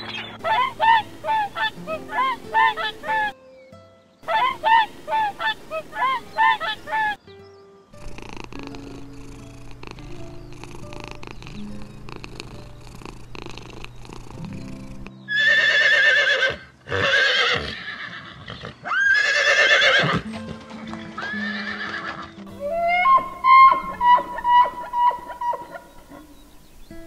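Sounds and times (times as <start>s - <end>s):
soft background music: 0.0s - 17.8s, 19.0s - 27.0s
horse whinnying: 15.3s - 25.9s.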